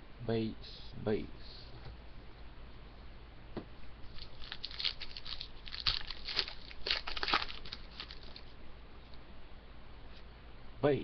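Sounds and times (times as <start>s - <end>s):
cards being handled: 4.1s - 8.5s
wrapper crackling being torn: 4.1s - 8.5s.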